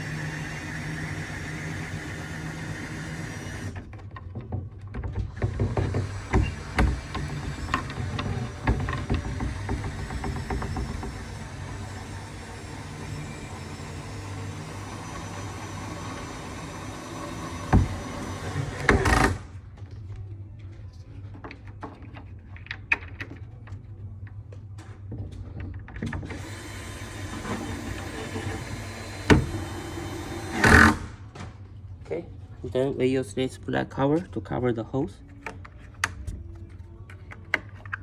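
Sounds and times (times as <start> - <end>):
cordless drill driving screws: 0.0 - 3.8, 5.8 - 19.4, 26.3 - 31.1
knocks of wooden panels: 3.9 - 11.6, 17.3 - 19.4.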